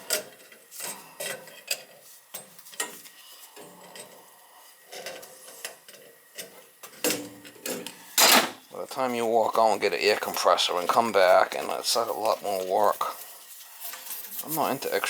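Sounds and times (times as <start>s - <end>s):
clinks of tools and metal parts: 5.9s - 8.6s.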